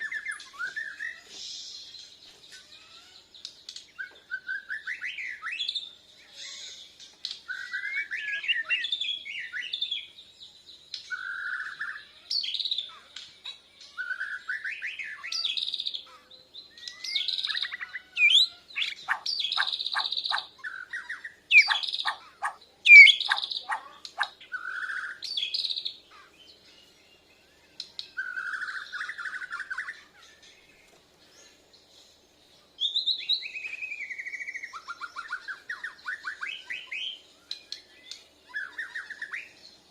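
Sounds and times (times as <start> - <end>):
bird singing whistled phrases: 0.0 - 1.8, 3.9 - 6.6, 7.5 - 10.1, 11.0 - 13.1, 14.0 - 26.3, 27.4 - 30.4, 32.8 - 39.6
sharp clicking bird notes: 3.4 - 3.9, 21.6 - 24.3.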